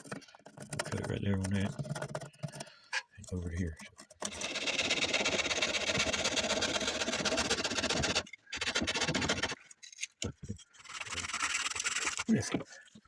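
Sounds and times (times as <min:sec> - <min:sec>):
power saw cutting bark: 0:04.2 - 0:09.6, 0:10.8 - 0:12.3.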